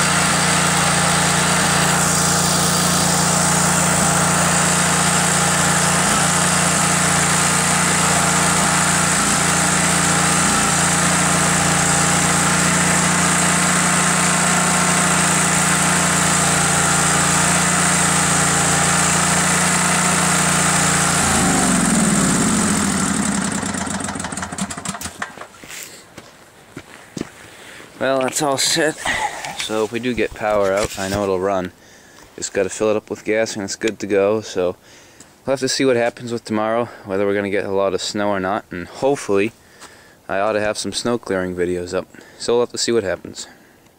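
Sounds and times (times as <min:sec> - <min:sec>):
generator engine running: 0:00.0 - 0:25.5.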